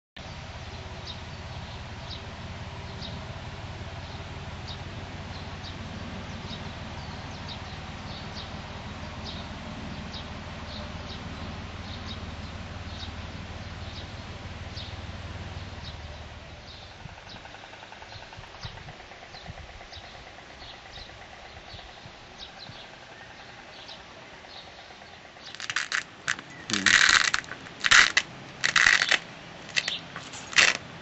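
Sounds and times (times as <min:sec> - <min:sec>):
low rumble and hiss: 0:00.2 - 0:31.0
small bird chirping: 0:15.7 - 0:30.8.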